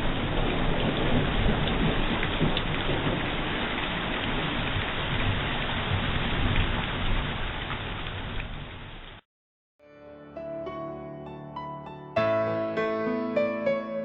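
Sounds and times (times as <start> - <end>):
heavy rain: 0.0 - 9.2.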